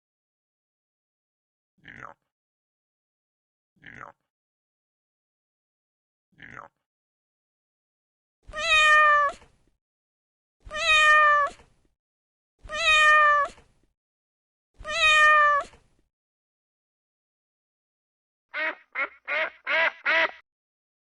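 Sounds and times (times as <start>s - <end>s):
cat meowing: 8.5s - 9.5s, 10.7s - 11.7s, 12.6s - 13.7s, 14.8s - 15.8s.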